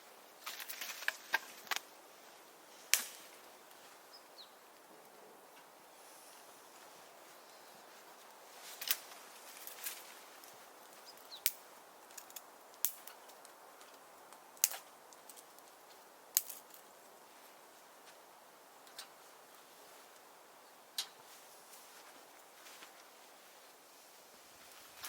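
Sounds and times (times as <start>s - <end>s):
faint steady hiss: 0.0s - 25.0s
firewood crackling and popping: 0.4s - 2.0s, 2.8s - 4.1s, 7.9s - 17.1s.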